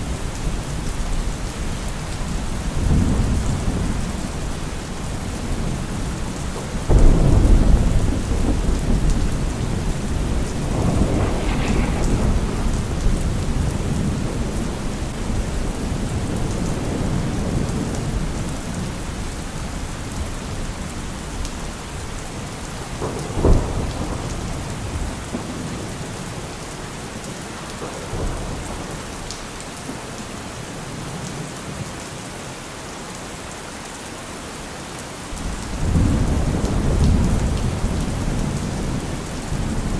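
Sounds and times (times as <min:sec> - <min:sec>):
steady rain: 0:00.0 - 0:39.9
rolling thunder rumble: 0:00.1 - 0:21.0, 0:21.9 - 0:26.6, 0:35.4 - 0:39.9
sharp thunderclap: 0:06.8 - 0:18.3, 0:22.9 - 0:25.8, 0:35.4 - 0:39.9.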